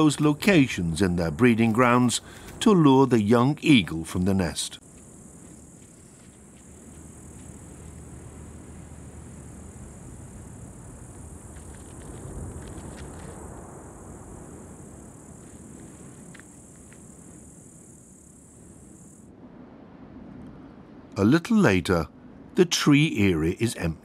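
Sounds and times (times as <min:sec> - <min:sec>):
high-pitched insect chorus: 0:00.0 - 0:19.3
faint ticks: 0:11.4 - 0:13.5, 0:15.4 - 0:17.1.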